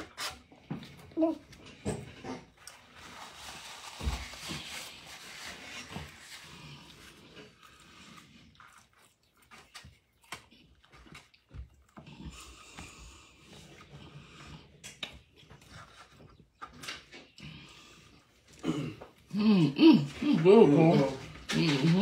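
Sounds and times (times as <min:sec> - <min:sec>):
person chewing: 0:05.8 - 0:15.7.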